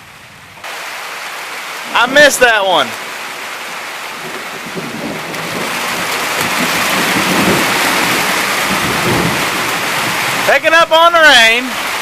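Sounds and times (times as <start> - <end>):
heavy rain pouring: 0.0 - 12.0
low rumble of thunder: 4.2 - 10.5.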